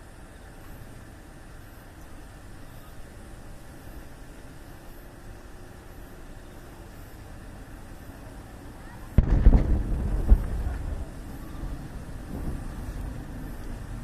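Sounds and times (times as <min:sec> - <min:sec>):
fireworks bangs: 0:09.1 - 0:12.8
low rumble: 0:09.2 - 0:14.0.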